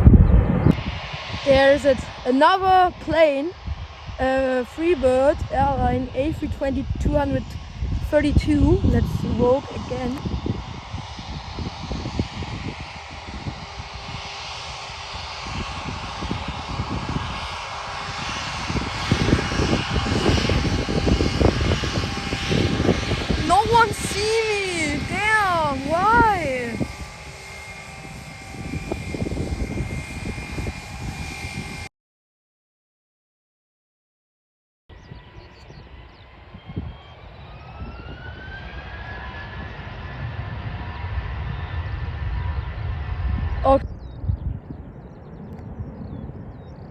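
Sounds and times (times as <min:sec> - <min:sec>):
low rumble: 0:00.0 - 0:02.3, 0:06.8 - 0:17.1, 0:35.0 - 0:46.9
jet engines rushing: 0:00.0 - 0:31.9, 0:35.0 - 0:46.9.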